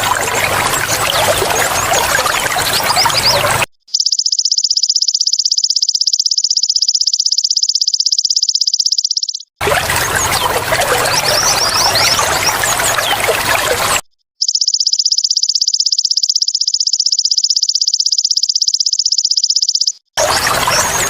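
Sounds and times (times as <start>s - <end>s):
trickling water: 0.0s - 3.7s, 9.6s - 14.0s, 20.2s - 21.0s.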